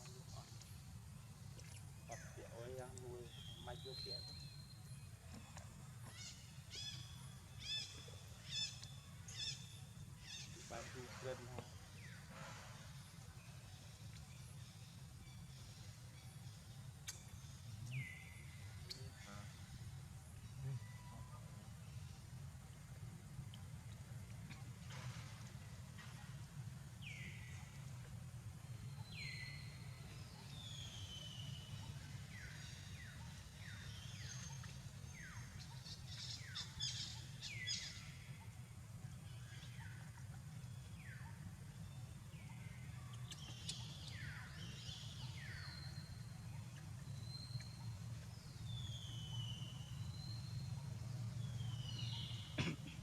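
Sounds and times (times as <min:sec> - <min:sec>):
steady low hum: 0:00.0 - 0:53.0
bird chirps and clicks: 0:03.7 - 0:04.4, 0:08.6 - 0:09.0, 0:17.0 - 0:18.0, 0:18.8 - 0:19.2, 0:43.1 - 0:44.3, 0:46.5 - 0:48.0.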